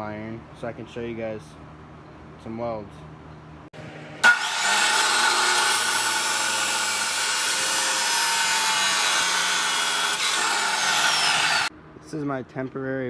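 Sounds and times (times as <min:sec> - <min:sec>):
chop saw cutting steel: 0:04.2 - 0:11.7.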